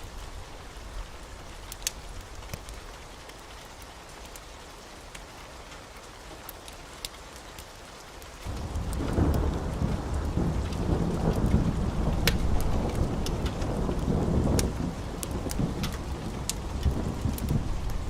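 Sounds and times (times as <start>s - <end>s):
heavy rain: 0.0s - 18.0s
deep thunder rumble: 8.5s - 18.0s.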